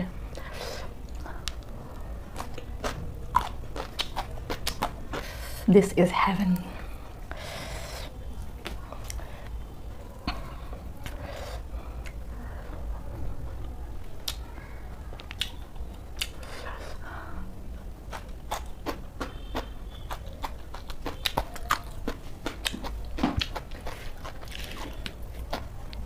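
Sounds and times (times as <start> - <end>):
crisp chewing crunches: 0.4 - 5.4, 18.0 - 26.0.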